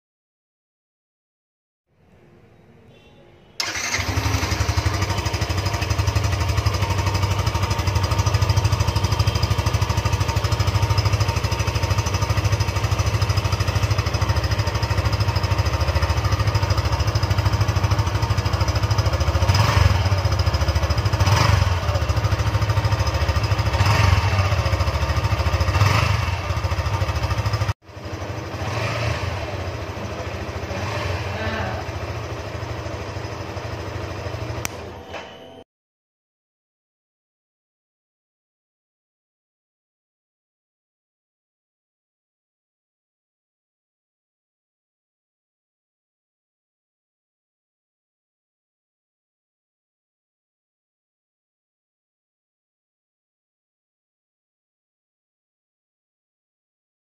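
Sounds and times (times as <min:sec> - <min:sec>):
motorcycle engine running: 0:03.6 - 0:34.9.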